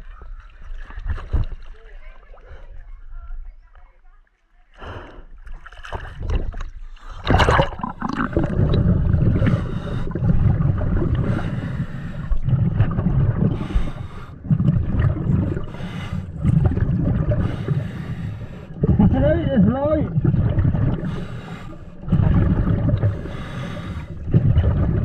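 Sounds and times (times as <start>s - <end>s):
water gurgling underwater: 5.4s - 25.0s
water splash: 5.5s - 11.4s.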